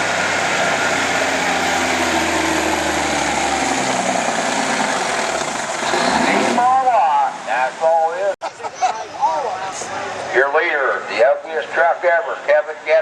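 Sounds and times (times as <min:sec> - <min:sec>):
diesel truck engine running: 0:00.0 - 0:08.4.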